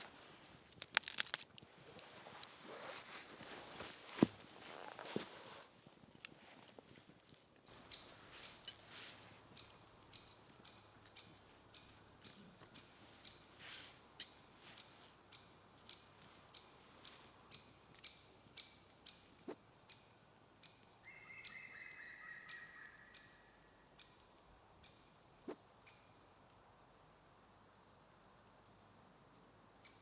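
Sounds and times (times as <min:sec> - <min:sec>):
lower wavering bird call: 0:21.0 - 0:23.6.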